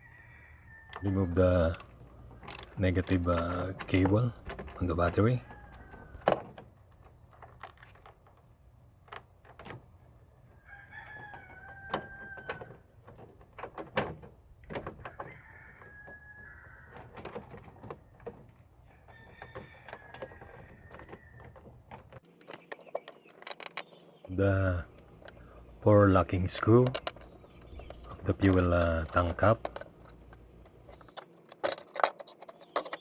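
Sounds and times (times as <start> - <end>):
rooster crowing: 0.0 - 1.2, 5.4 - 6.3, 10.6 - 12.8, 15.0 - 17.2, 18.8 - 21.6
sharp clicks and knocks: 0.9 - 10.1, 11.1 - 16.2, 16.9 - 33.0.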